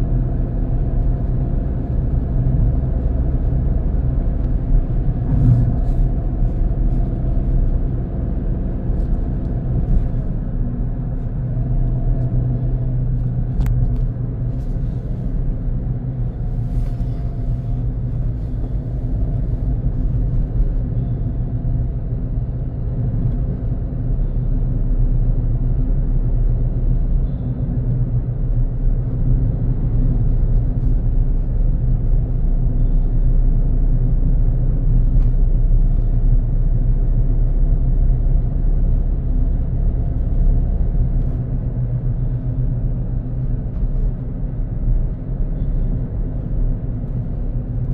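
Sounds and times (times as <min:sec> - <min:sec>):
car engine hum and tyre rumble: 0:00.0 - 0:47.9.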